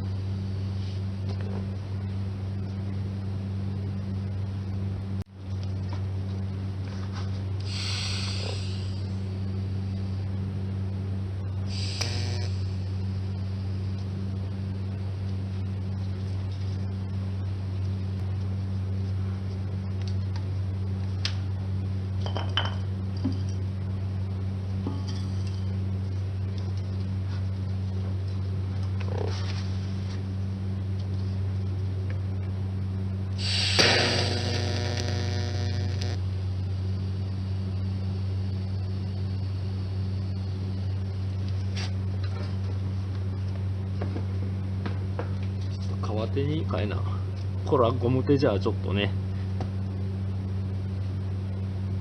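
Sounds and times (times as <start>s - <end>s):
low electrical hum: 0.0s - 52.0s
buzzing tone: 7.6s - 10.2s, 11.7s - 14.0s, 33.4s - 41.4s.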